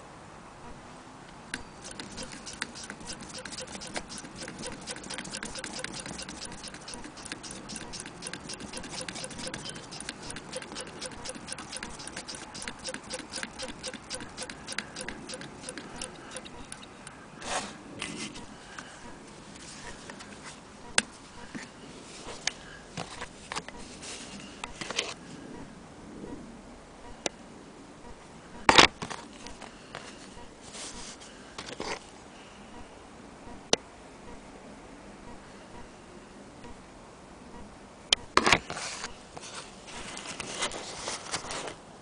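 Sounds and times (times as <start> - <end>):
scattered clicks: 1.5 - 17.2
sewing machine clicking: 1.6 - 17.0
rustle: 16.4 - 26.6, 28.2 - 33.0, 38.3 - 42.0.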